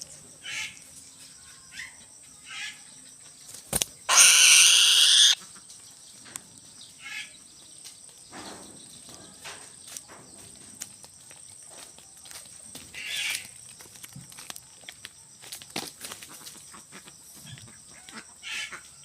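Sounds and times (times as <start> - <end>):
faint bird calls: 3.9 - 5.7
bird screaming harshly: 4.1 - 5.4.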